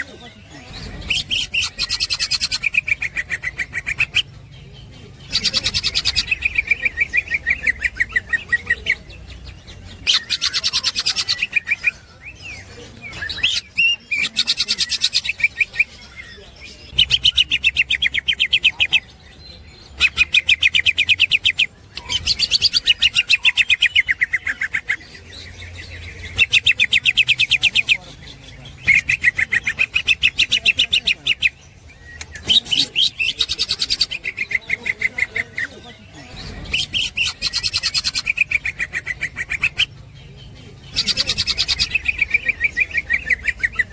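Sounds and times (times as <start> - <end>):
bird chattering rapid high notes: 0.7 - 4.3.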